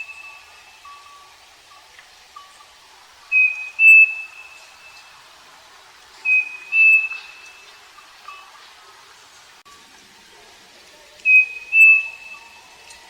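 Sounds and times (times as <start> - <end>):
bird two-note whistled song: 0.0 - 1.1, 3.3 - 5.1, 6.2 - 7.7, 11.2 - 13.0.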